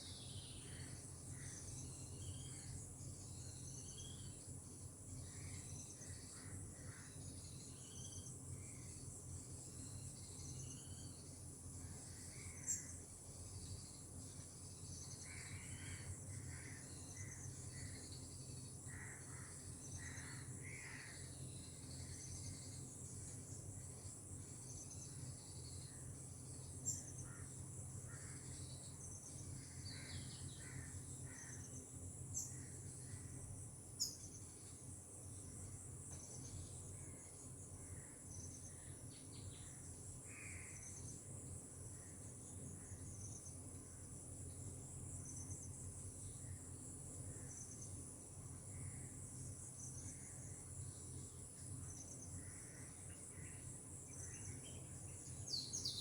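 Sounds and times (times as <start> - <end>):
insects trilling: 0.0 - 56.0
bird calls and chirps: 51.8 - 56.0.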